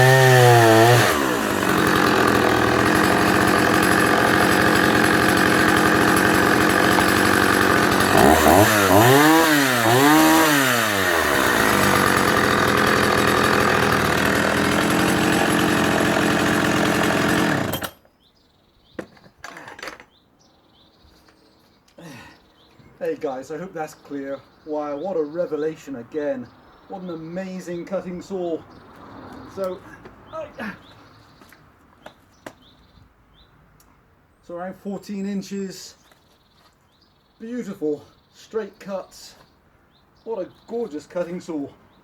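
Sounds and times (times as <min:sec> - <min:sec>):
chainsaw cutting log: 0:00.0 - 0:18.0.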